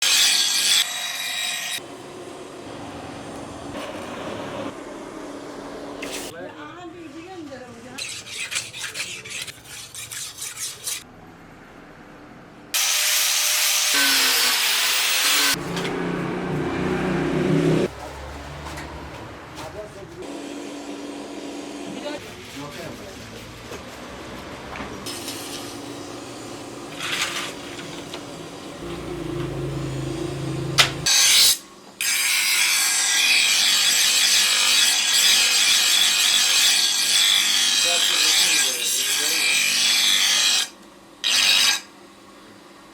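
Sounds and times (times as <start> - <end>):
rhythmic metal scraping strokes: 8.0 - 11.1
low machine hum: 27.9 - 31.1.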